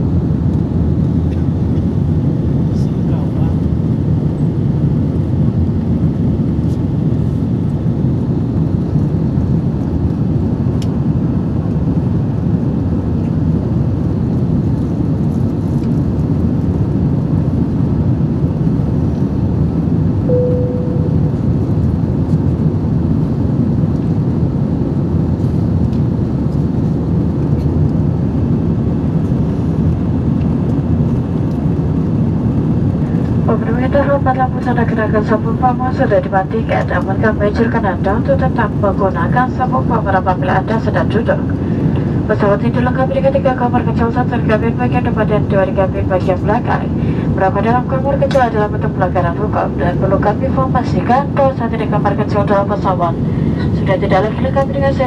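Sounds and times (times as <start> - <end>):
airliner cabin roar: 0.0 - 55.0
short tone: 20.3 - 21.7.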